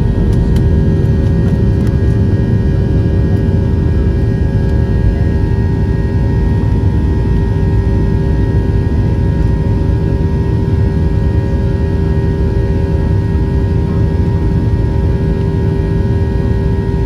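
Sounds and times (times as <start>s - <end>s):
steady whining tones: 0.0s - 12.5s
jet engine rush in cabin: 0.0s - 17.0s.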